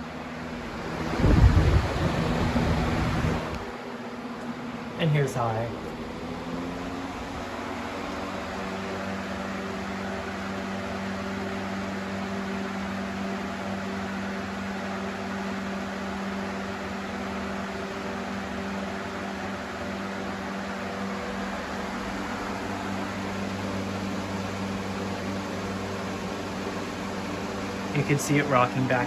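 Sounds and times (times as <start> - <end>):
box fan rushing air: 0.0 - 29.0
fan motor hum: 0.0 - 29.0.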